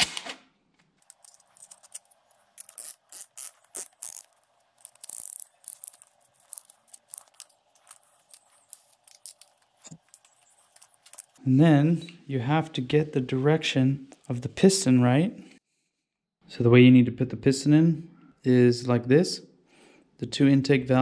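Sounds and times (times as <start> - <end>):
tool ratchet clicking: 2.6 - 7.4.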